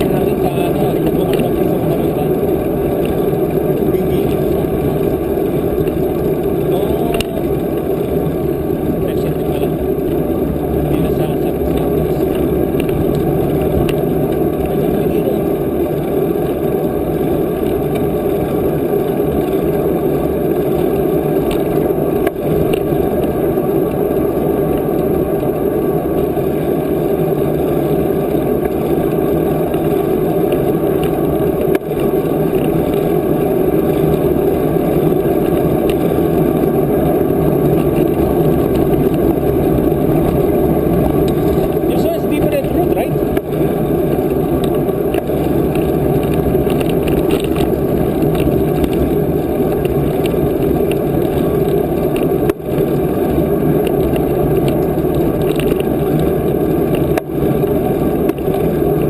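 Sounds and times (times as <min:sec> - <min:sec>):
wind rumble on microphone: 0:00.0 - 0:59.0.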